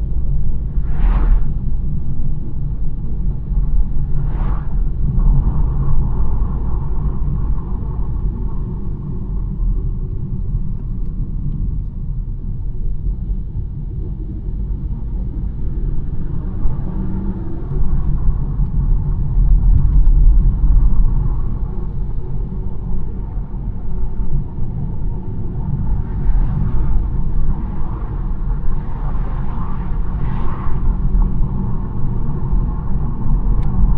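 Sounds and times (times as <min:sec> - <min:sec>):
car engine rumble: 0:00.0 - 0:33.9.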